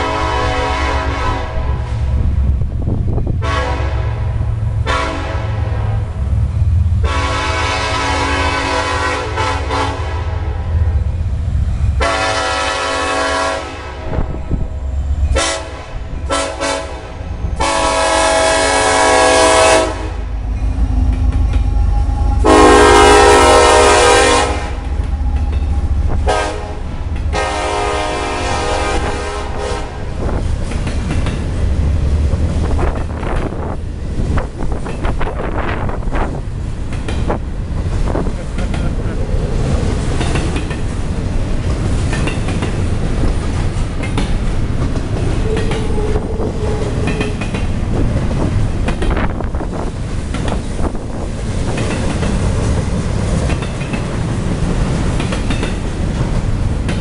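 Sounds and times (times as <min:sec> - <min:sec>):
locomotive air horn blasts: 0:00.0 - 0:02.0, 0:03.4 - 0:06.0, 0:07.0 - 0:10.9, 0:12.0 - 0:14.4, 0:15.3 - 0:20.3, 0:22.3 - 0:25.0, 0:26.1 - 0:30.1
train rumble and wheel clatter: 0:00.0 - 0:57.0.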